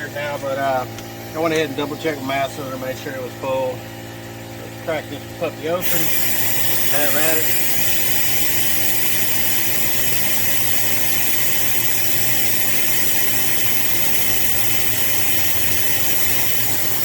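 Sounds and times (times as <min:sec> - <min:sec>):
vacuum brake bleeder hissing: 0:05.8 - 0:17.0.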